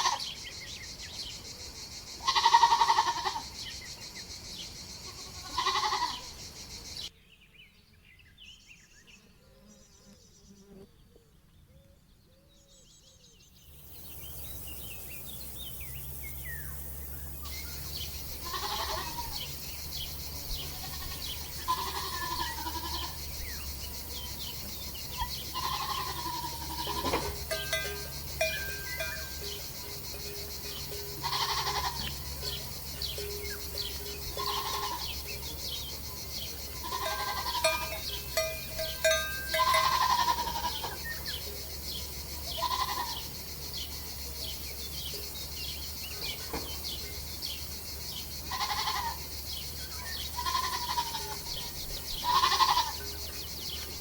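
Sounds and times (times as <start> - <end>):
goats bleating: 0.0 - 0.2, 2.2 - 3.4, 5.1 - 6.2, 18.4 - 19.5, 20.5 - 23.6, 25.0 - 32.6, 33.8 - 35.3, 36.7 - 41.2, 42.5 - 43.2, 48.5 - 49.2, 50.3 - 53.0
faint high chirping: 13.6 - 43.3.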